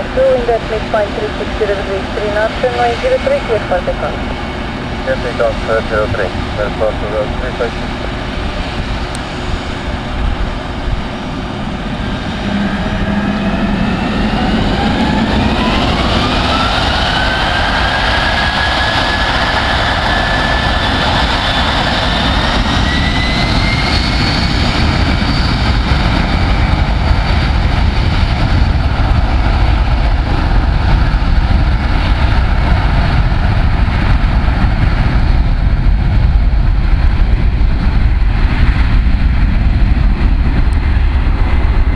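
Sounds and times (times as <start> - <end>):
deep rumble: 0.0 - 41.9
jet engines whine: 0.0 - 41.9.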